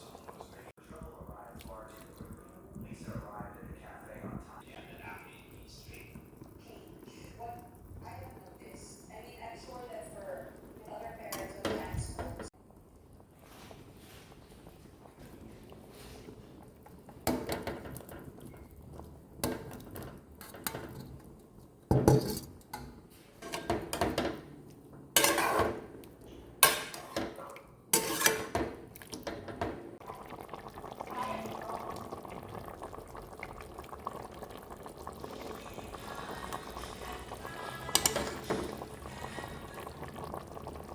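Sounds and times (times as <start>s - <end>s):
pots and pans clattering: 17.2s - 18.8s, 19.4s - 21.2s, 21.9s - 25.9s, 26.6s - 30.0s, 37.5s - 39.6s.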